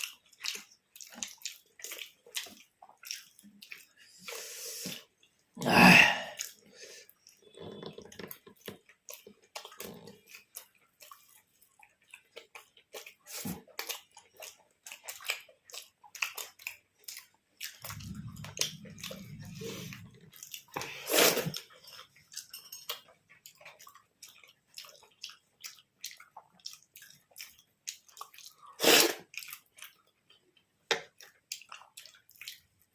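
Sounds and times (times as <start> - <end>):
wet chewing and mouth smacking: 0.0 - 5.6, 6.2 - 32.9
low hum: 17.9 - 20.4.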